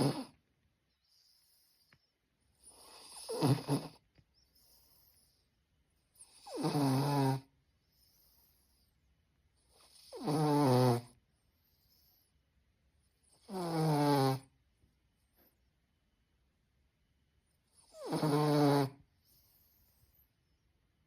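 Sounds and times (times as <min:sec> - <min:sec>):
dog snoring: 0:00.0 - 0:00.4, 0:02.6 - 0:04.0, 0:06.1 - 0:08.9, 0:09.6 - 0:12.2, 0:13.2 - 0:14.5, 0:17.7 - 0:20.2.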